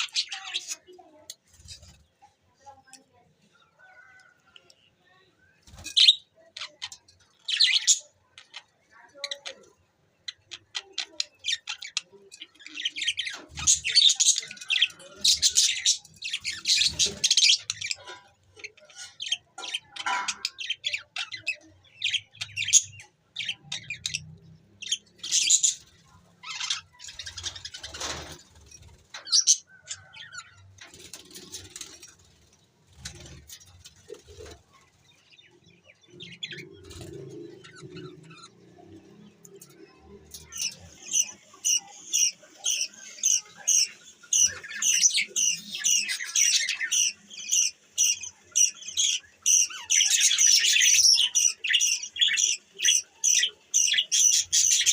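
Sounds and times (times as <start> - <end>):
budgerigars chirping: 40.5 - 54.9.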